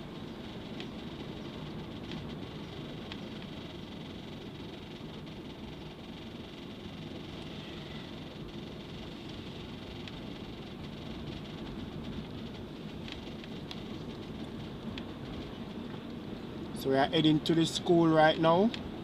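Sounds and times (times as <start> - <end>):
engine and tyre noise: 0.0 - 19.0.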